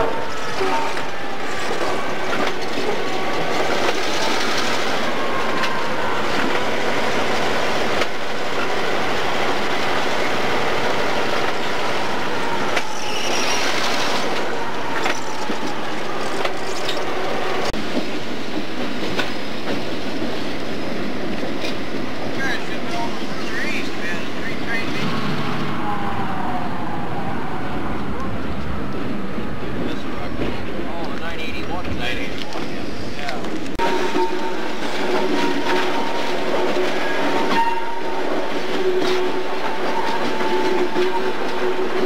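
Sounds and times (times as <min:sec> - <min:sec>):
train wheels rumbling on rail: 0:00.0 - 0:42.0
thin wheel squeal: 0:12.8 - 0:14.3.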